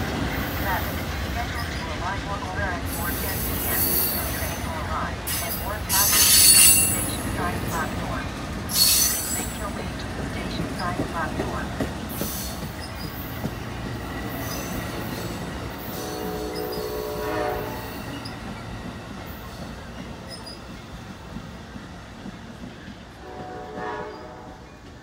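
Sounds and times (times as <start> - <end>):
passenger train rumbling past: 0.0 - 25.0
train horn blasts: 15.8 - 18.2, 23.1 - 24.8.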